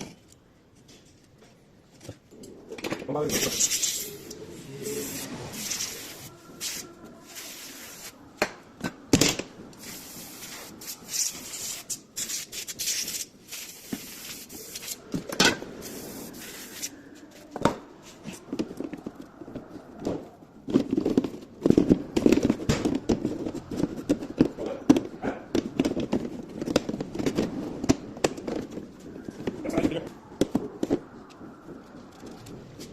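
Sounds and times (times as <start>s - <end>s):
parts rubbing: 3.2s - 8.2s.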